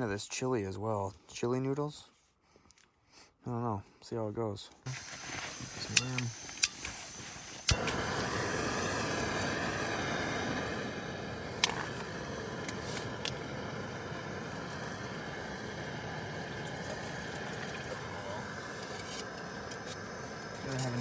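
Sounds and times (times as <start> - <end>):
gas stove burning hiss: 4.9 - 21.0
gas stove ignition click: 5.8 - 7.0, 7.6 - 17.4.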